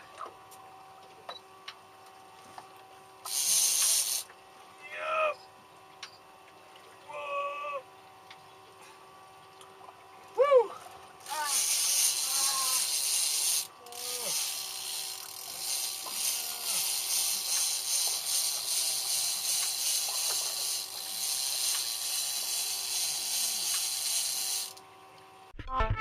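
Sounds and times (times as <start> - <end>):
fishing reel ratcheting whir: 3.2 - 4.3, 11.2 - 24.8.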